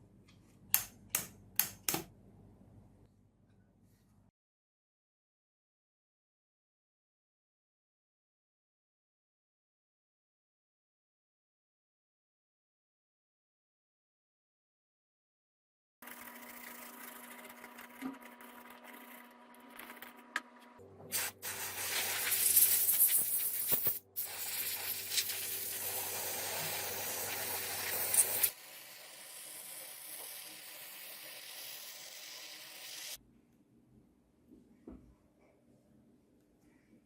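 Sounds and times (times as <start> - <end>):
loud hissing spray: 21.1 - 33.2.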